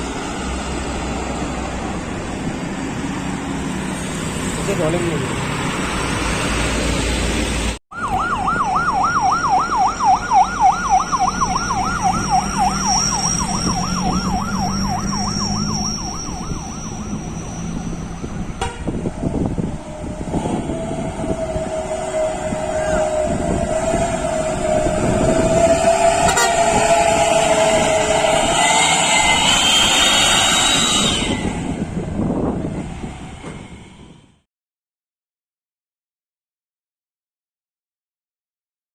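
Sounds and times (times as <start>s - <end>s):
vehicle and road noise: 0.0s - 34.5s
electronic siren yelping: 7.9s - 31.7s
long steady horn tone: 17.8s - 19.4s, 20.5s - 29.9s.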